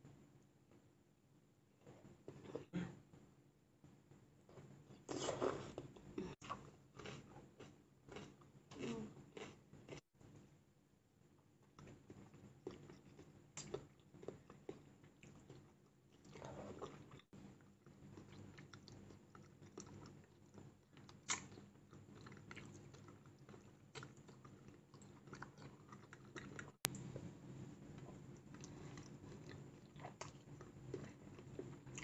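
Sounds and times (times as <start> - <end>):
wet chewing and mouth clicks: 11.7 - 27.1.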